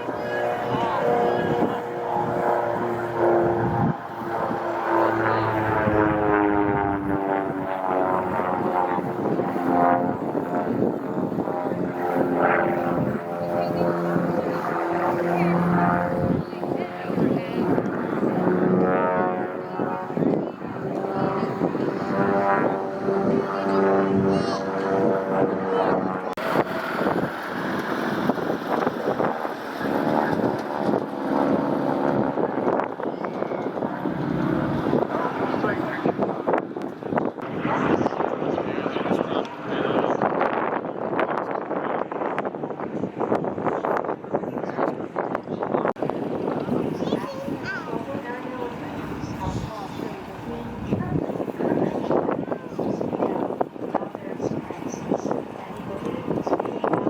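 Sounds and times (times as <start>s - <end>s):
propeller airplane flying by: 0.0s - 57.0s
wind buffeting microphone: 0.0s - 57.0s.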